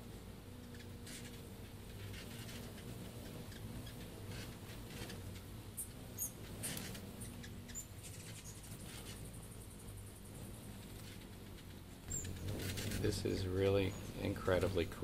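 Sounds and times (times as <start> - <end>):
faint steady low hum: 0.0 - 15.0
hummingbird squeaky chips: 0.6 - 9.9, 10.6 - 14.3.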